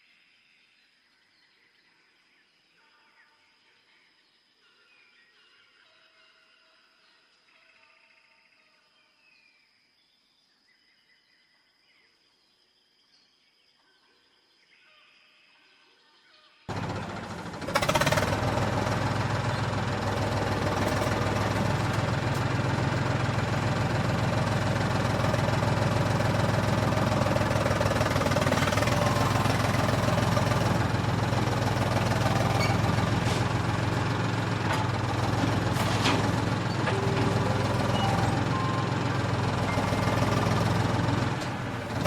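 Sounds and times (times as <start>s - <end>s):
diesel tractor engine knocking: 16.7s - 42.0s.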